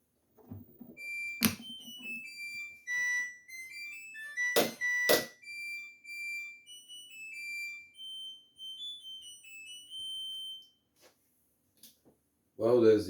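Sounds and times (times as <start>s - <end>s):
washing machine chime melody: 0.9s - 11.0s.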